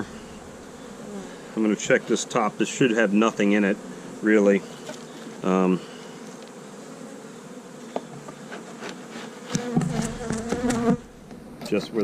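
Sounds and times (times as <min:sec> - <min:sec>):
loud wavering bee buzz close: 0:00.0 - 0:11.6
honey bees buzzing: 0:00.0 - 0:12.0
knocks on hive: 0:09.5 - 0:11.4.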